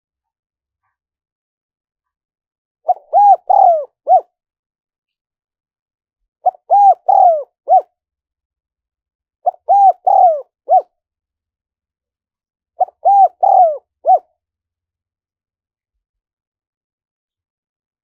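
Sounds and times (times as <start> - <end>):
dove cooing: 2.9 - 4.3, 6.4 - 7.9, 9.4 - 10.9, 12.8 - 14.3.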